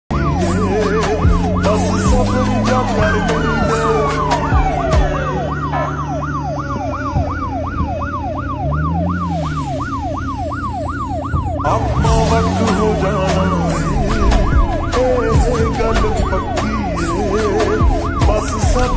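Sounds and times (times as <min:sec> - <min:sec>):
siren tone falling in pitch: 0:00.1 - 0:18.9
siren yelping: 0:00.1 - 0:18.9
sharp rhythmic hits: 0:00.7 - 0:05.9, 0:11.0 - 0:18.9.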